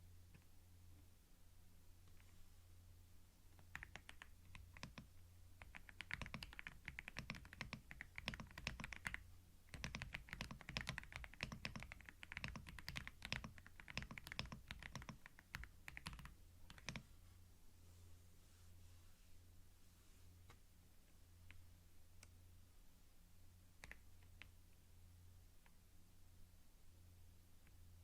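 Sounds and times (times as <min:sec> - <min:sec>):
faint low hum: 0:00.0 - 0:28.0
computer keyboard typing: 0:03.6 - 0:17.0, 0:23.8 - 0:24.5.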